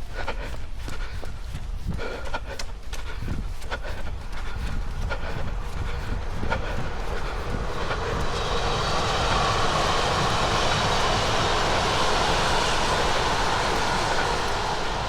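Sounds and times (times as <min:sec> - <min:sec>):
wind buffeting microphone: 0:00.0 - 0:15.0
train passing: 0:03.9 - 0:15.0.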